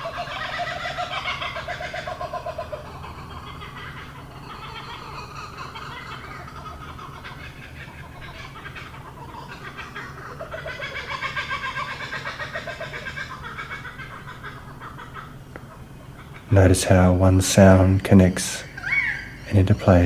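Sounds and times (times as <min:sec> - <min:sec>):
chorus of animal calls: 0:00.0 - 0:16.5, 0:18.6 - 0:20.0
steady low hum: 0:00.0 - 0:20.0.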